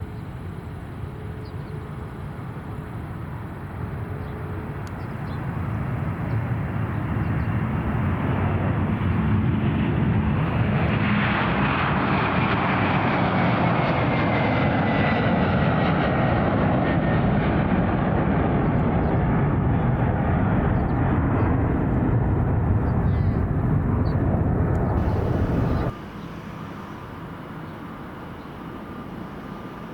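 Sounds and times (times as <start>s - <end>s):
airliner engines rumbling: 0.0s - 29.9s
high jet engine whine: 0.0s - 29.9s.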